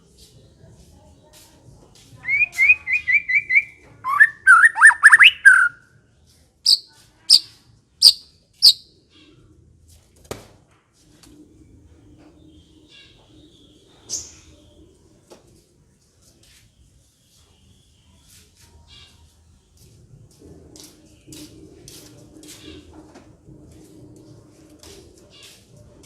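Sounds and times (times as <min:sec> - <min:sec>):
bird singing: 0:02.2 - 0:05.8, 0:06.7 - 0:07.4, 0:08.0 - 0:08.9.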